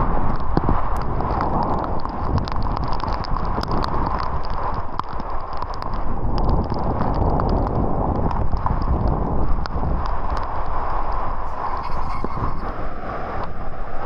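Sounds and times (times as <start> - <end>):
raindrops ticking close by: 0.3 - 10.5.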